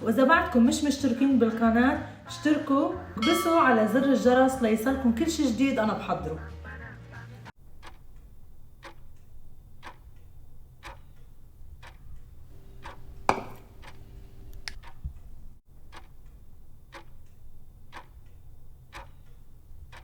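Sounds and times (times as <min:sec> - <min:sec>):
clock ticking: 0:07.6 - 0:20.0
low steady hum: 0:07.6 - 0:20.0.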